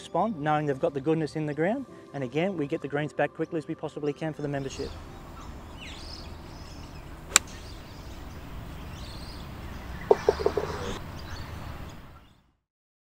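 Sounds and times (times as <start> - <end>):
birds calling: 4.4 - 12.4
short low calls: 10.1 - 11.0.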